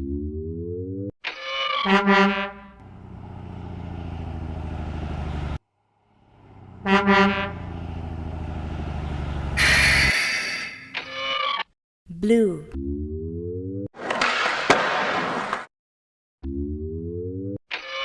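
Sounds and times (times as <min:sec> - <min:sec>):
truck horn double honk: 0:01.8 - 0:02.8, 0:06.6 - 0:07.9, 0:09.5 - 0:10.7
garbage truck engine running: 0:02.7 - 0:10.1.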